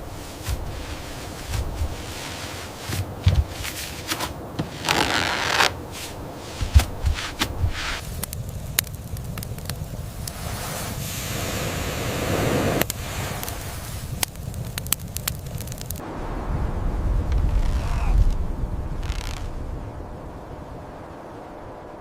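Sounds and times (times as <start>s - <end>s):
wind-like rushing noise: 0.0s - 22.0s
sharp cracks: 6.7s - 10.4s, 12.8s - 16.0s, 19.0s - 19.6s.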